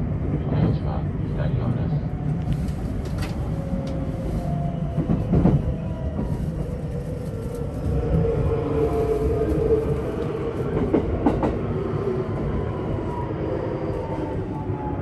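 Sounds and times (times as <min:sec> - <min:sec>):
train wheels rumbling on track: 0:00.0 - 0:14.9.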